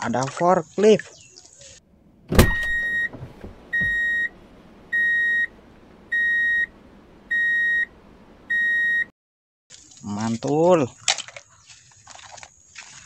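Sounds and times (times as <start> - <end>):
reversing alarm beeps: 2.5 - 4.3, 4.9 - 5.5, 6.1 - 6.7, 7.3 - 7.9, 8.5 - 9.1.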